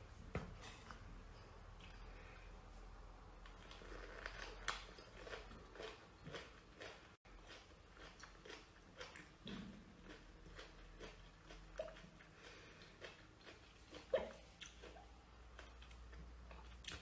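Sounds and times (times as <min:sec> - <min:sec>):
biting and chewing lemon: 0:03.5 - 0:17.0.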